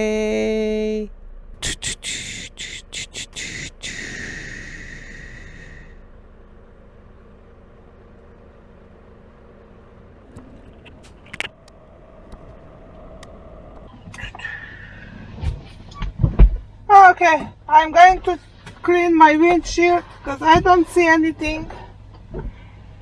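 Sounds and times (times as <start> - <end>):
truck engine idling: 1.1 - 15.4
sharp clicks: 10.3 - 13.4.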